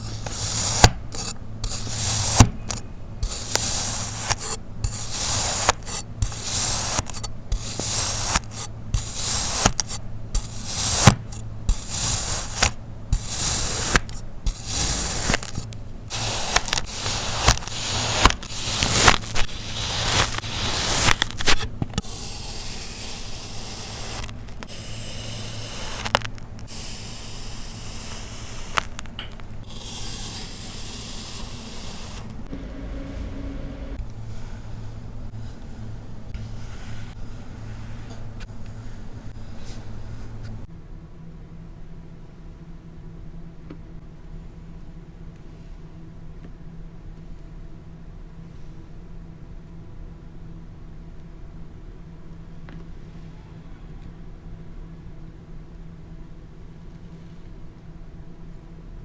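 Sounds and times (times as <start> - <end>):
sand slicing strokes: 0.0 - 32.5.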